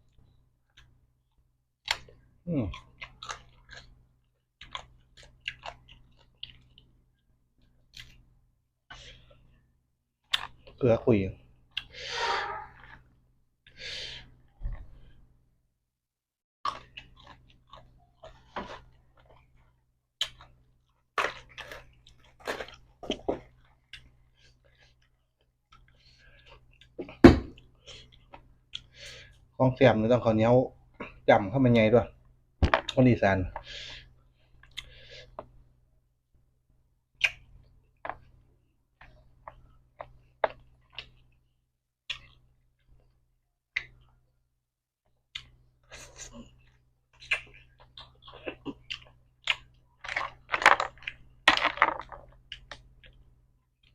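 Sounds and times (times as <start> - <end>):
person chewing crunchy food: 1.8 - 8.3, 16.6 - 29.2, 42.1 - 43.0, 45.3 - 53.9.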